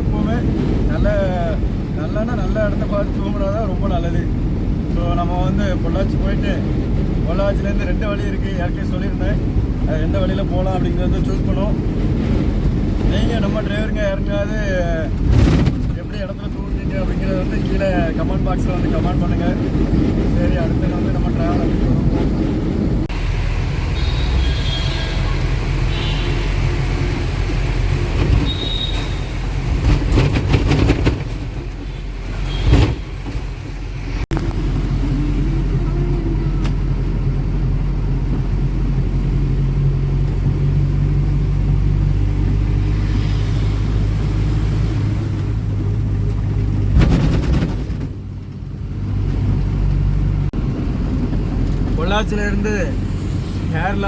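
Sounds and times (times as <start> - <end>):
road noise: 0.0 - 54.0
truck diesel engine running: 19.6 - 43.0.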